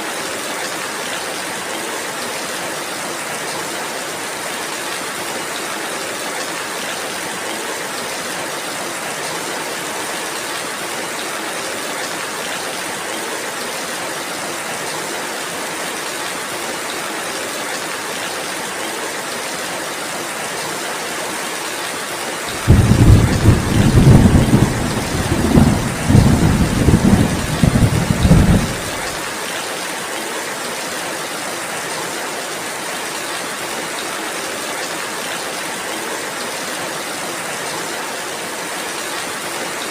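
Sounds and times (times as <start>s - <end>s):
thunder rumble: 22.5s - 29.2s
rain hissing: 22.5s - 29.4s.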